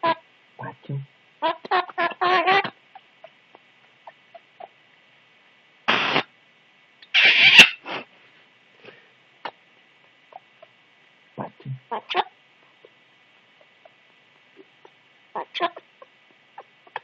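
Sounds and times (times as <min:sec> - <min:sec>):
parrot screeching: 0:07.0 - 0:07.8.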